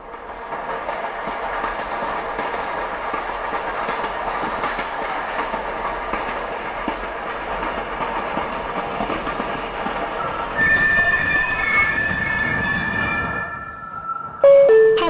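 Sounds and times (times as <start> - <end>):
train clickety-clack on rails: 0.0 - 14.4
high metal squeal: 10.2 - 14.4.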